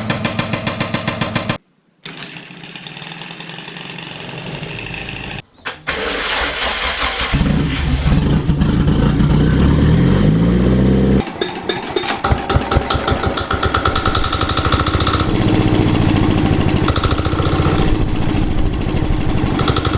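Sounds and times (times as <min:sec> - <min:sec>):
engine starting and idling: 0:02.1 - 0:10.0, 0:11.2 - 0:19.9
engine running with rising pitch: 0:02.6 - 0:05.4, 0:07.4 - 0:11.2, 0:14.1 - 0:19.9.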